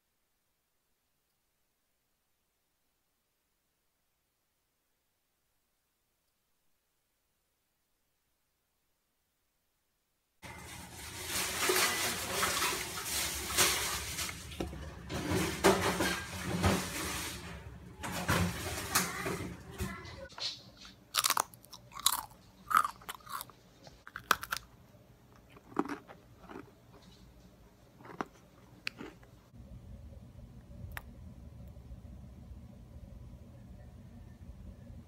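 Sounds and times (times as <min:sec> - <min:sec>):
cookie being bitten and chewed: 0:20.8 - 0:24.7, 0:25.3 - 0:27.3, 0:27.9 - 0:29.4.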